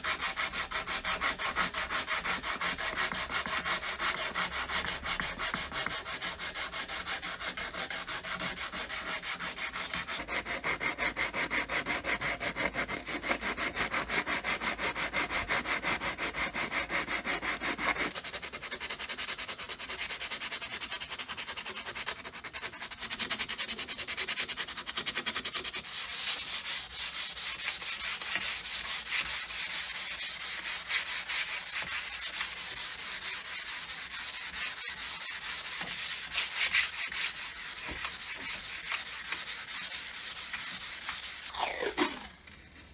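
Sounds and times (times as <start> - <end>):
abrasive sanding of metal: 23.9 - 42.3.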